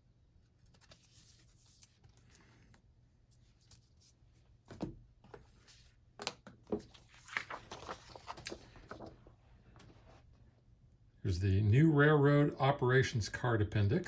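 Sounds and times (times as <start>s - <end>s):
paper rustling: 0.5s - 2.8s, 3.4s - 10.1s.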